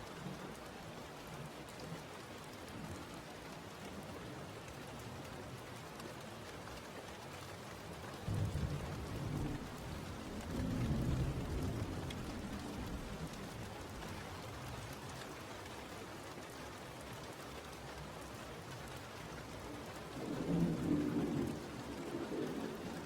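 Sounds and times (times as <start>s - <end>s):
steady rain falling: 0.0s - 23.0s
low roll of thunder: 8.2s - 13.7s, 19.9s - 23.0s.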